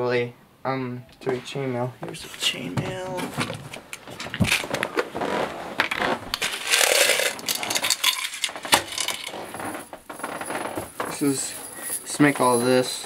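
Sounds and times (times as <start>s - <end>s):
chainmail rings rattling and clinking: 6.6s - 13.0s.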